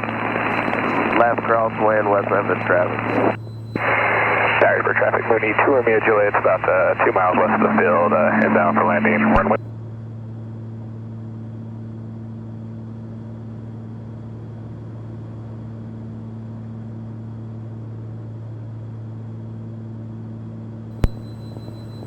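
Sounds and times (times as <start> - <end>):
propeller plane engines droning: 0.0 - 9.6
short click: 21.0 - 21.8.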